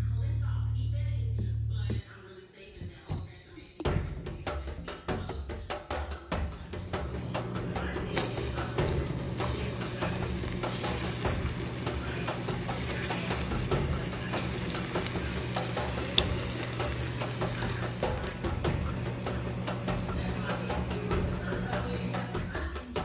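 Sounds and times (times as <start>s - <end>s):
utensil stirring in a pan: 7.3s - 22.6s
food sizzling in a pan: 7.5s - 22.6s.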